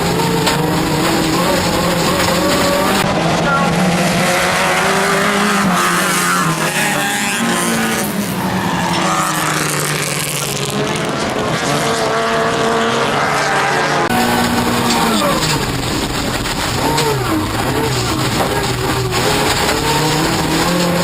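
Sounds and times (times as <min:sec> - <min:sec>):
race car engine revving: 0:00.0 - 0:21.0
loud rushing noise: 0:14.0 - 0:21.0.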